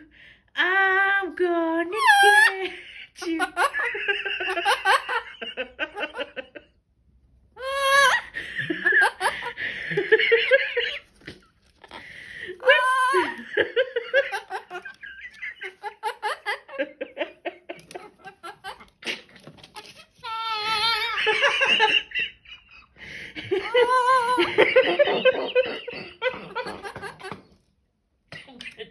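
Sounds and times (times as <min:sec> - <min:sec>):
wavering laughing cries: 0:02.0 - 0:06.6, 0:07.6 - 0:11.1, 0:11.8 - 0:22.1, 0:23.5 - 0:27.4
giggling laughter: 0:02.0 - 0:06.8, 0:07.6 - 0:27.6.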